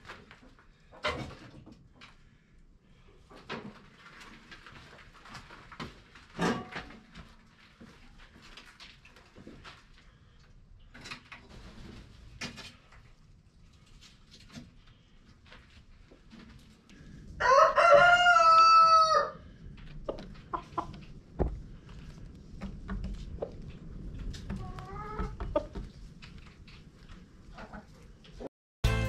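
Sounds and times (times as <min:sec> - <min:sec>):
rooster crowing: 0:17.4 - 0:19.4.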